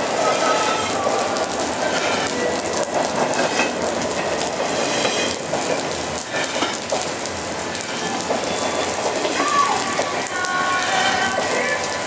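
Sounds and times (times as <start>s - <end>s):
steady rain hiss: 0.0s - 12.0s
wheels clicking over rail joints: 0.0s - 12.0s.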